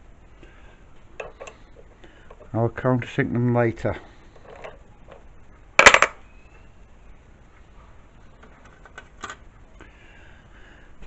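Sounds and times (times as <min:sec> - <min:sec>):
metal parts clinking: 0:05.8 - 0:06.2.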